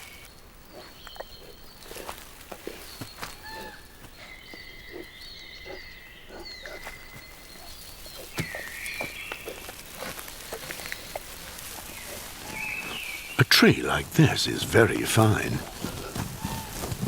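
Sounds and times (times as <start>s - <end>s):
bird calls and whistles: 0.0s - 11.2s, 11.8s - 13.4s.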